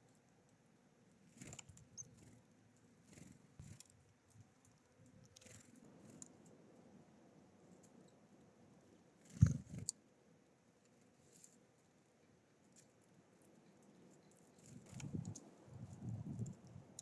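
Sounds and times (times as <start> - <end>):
small birds rustling and tapping: 1.3 - 6.6, 9.2 - 10.0, 12.6 - 17.0.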